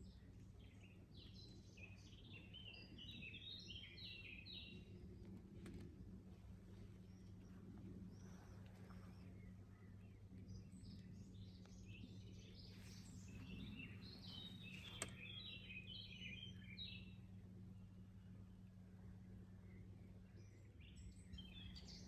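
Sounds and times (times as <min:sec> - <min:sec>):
steady low hum: 0:04.6 - 0:22.0
birds chirping: 0:08.1 - 0:17.0.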